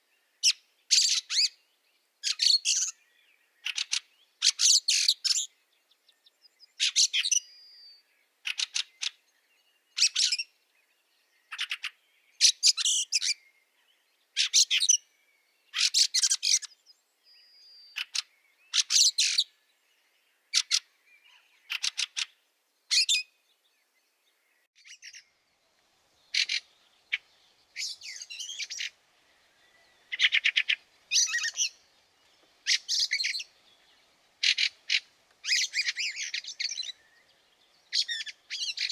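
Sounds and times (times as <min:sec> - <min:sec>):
bird harsh chattering calls: 0:26.2 - 0:38.9.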